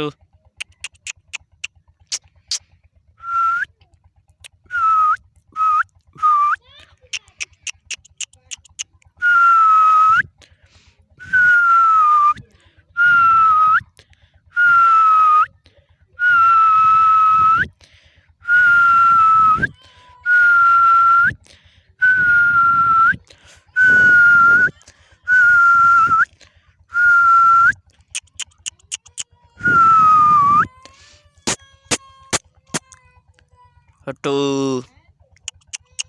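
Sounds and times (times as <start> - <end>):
puppy whining: 0.6 - 2.6, 7.0 - 9.7, 27.0 - 33.0, 35.4 - 36.0.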